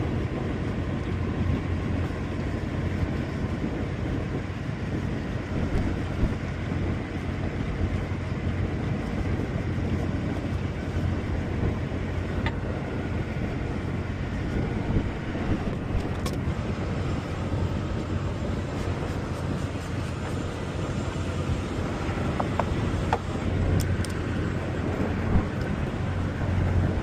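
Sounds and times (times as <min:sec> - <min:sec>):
engine idling: 0:05.6 - 0:27.0.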